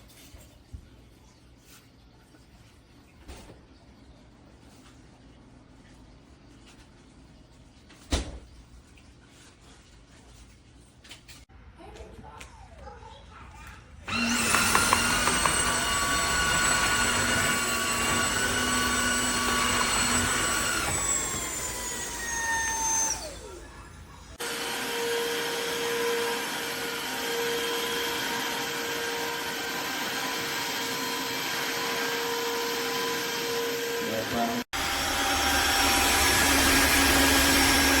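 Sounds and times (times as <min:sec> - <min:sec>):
vacuum motor whining: 0:14.1 - 0:38.0.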